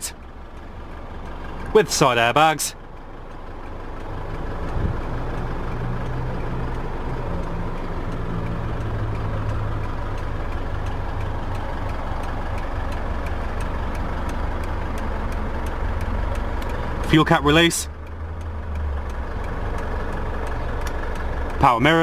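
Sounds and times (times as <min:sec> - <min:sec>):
diesel engine idling: 0:00.0 - 0:22.0
faint regular ticking: 0:00.0 - 0:22.0.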